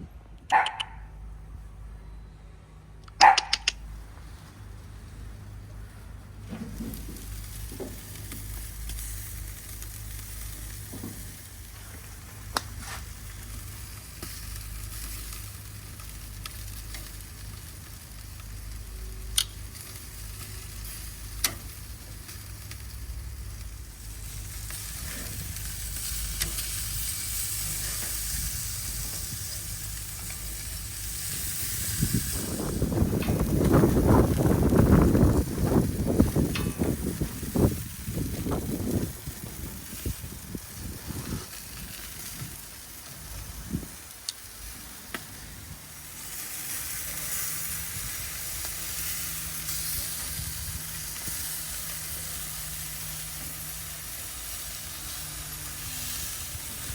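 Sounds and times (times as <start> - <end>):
sharp fat pops: 3.1 - 3.8
meat sizzling on a grill: 6.4 - 56.9.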